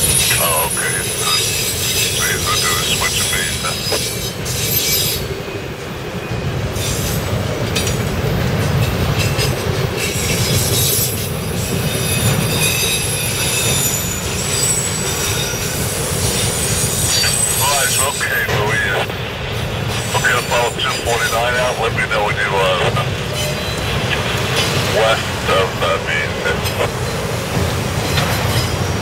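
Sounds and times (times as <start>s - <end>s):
steel wheels rumbling on rail: 0.0s - 29.0s
high-pitched wheel squeal: 10.2s - 18.4s.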